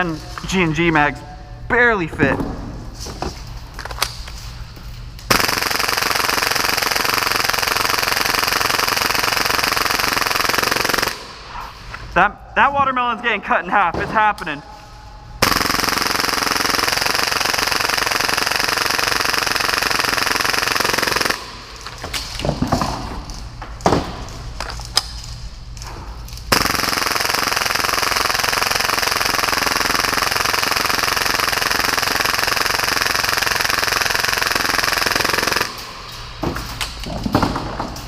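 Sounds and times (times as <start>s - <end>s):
airsoft pistol firing full-auto: 5.3s - 11.3s, 15.4s - 21.6s, 26.5s - 35.9s.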